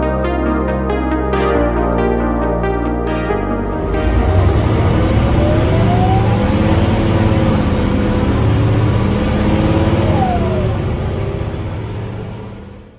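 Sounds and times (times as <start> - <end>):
bus diesel engine under load: 3.6 - 12.9
automatic gearbox changing up: 3.7 - 12.9.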